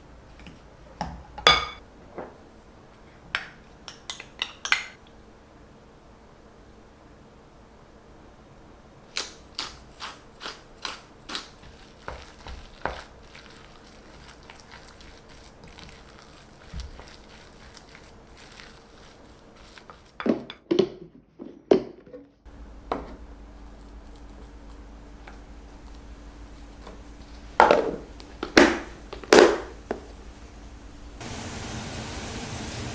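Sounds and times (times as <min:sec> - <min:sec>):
low hum: 0:22.5 - 0:32.9.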